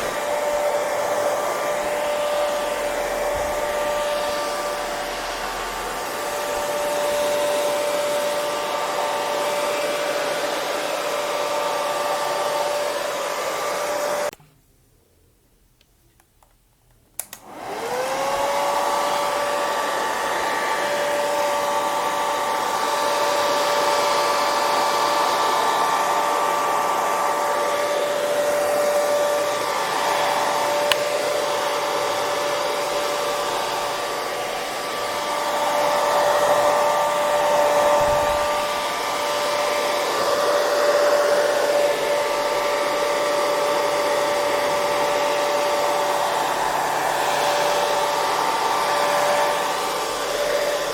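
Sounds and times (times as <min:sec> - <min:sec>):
hair dryer whining: 0:00.0 - 0:14.4, 0:17.1 - 0:50.9
hair dryer switch click: 0:15.8 - 0:17.6, 0:30.7 - 0:31.3.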